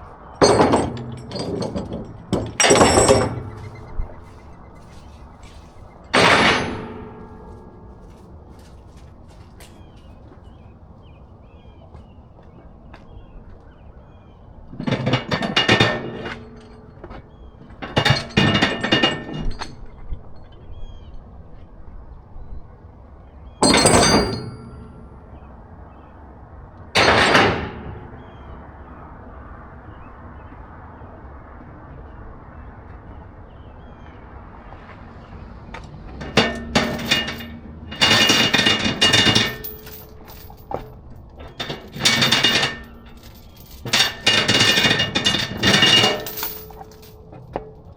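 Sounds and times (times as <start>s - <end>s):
metallic clanking and rattling: 0.0s - 10.6s, 14.7s - 20.8s, 23.6s - 25.5s, 27.0s - 28.6s, 34.6s - 47.9s.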